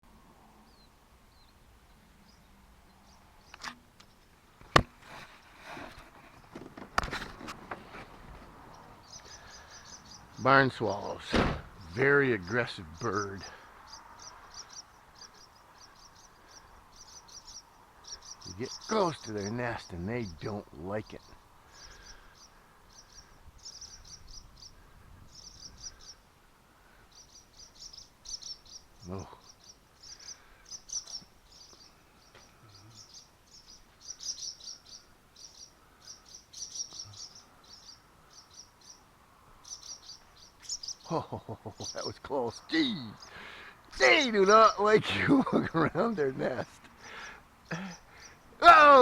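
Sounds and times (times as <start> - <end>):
rustling: 3.6 - 8.9
swallows alarm chirps: 8.7 - 11.2, 11.8 - 26.2, 27.0 - 45.0, 46.3 - 48.6.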